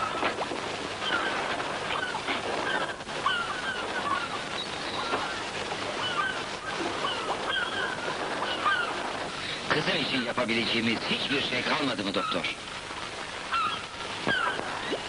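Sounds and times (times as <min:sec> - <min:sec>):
birds chirping: 0:00.0 - 0:15.0
steady hiss: 0:00.0 - 0:15.0.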